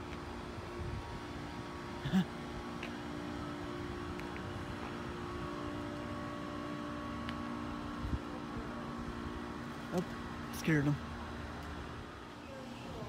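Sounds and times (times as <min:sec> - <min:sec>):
low machine drone: 0:00.0 - 0:13.0.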